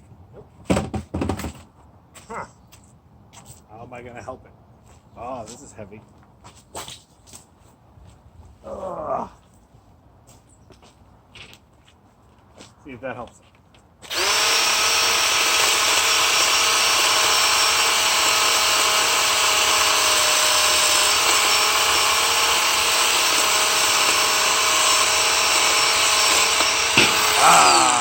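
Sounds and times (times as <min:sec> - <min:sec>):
electric chainsaw whining: 0:14.0 - 0:28.0.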